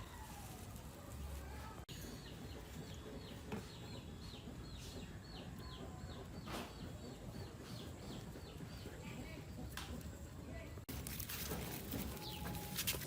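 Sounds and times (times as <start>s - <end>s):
bird chirping: 1.6s - 9.7s.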